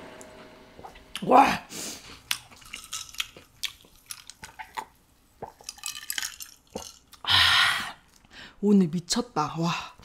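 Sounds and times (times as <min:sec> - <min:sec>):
chewing with wet mouth smacks: 0:02.1 - 0:05.9.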